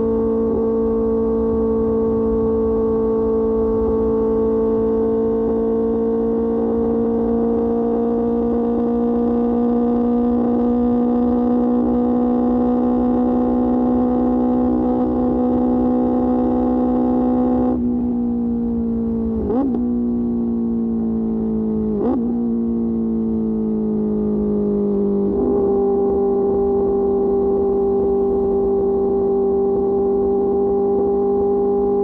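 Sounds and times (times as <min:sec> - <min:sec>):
motorcycle engine cruising: 0:00.0 - 0:32.0.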